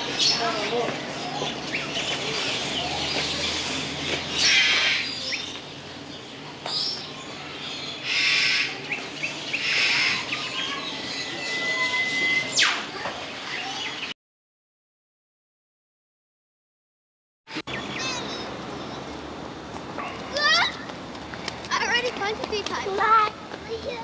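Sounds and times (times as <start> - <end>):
birds squawking: 0.0 - 14.1
birds chirping: 0.0 - 14.2, 17.5 - 19.1
bird whistling: 8.0 - 12.9.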